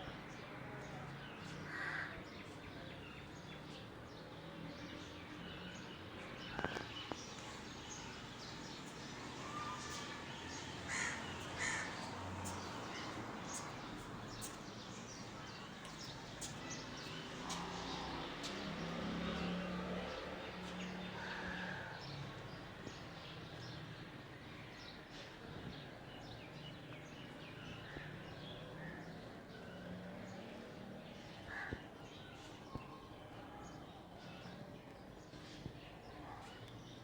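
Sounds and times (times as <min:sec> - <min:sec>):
loud bird calls: 0:09.2 - 0:14.6.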